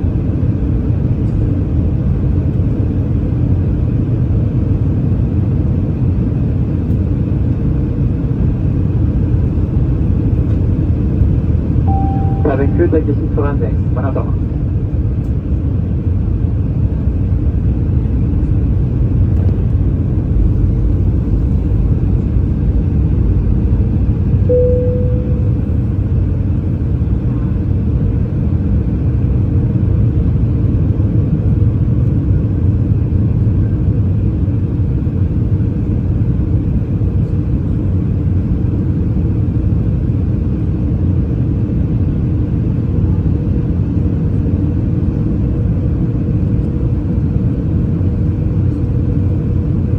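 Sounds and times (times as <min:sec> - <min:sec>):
airliner engines rumbling: 0:00.0 - 0:49.9
short tone: 0:11.9 - 0:13.3, 0:24.5 - 0:26.0
aircraft rolling on runway: 0:12.9 - 0:24.4.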